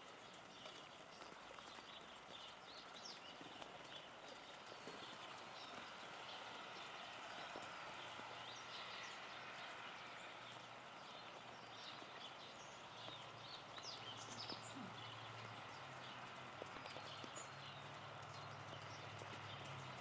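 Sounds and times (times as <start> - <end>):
light rain on foliage: 0.0 - 20.0.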